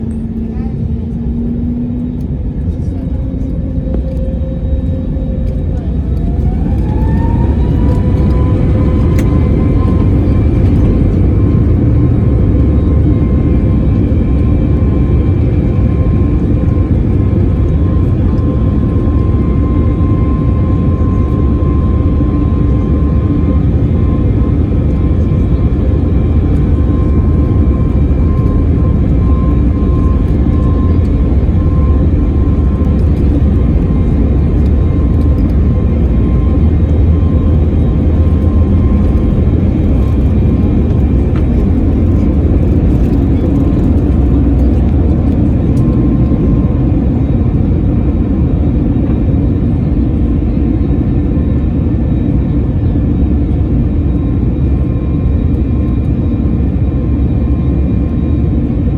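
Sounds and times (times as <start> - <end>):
airplane cabin engine rumble: 0.0 - 58.9.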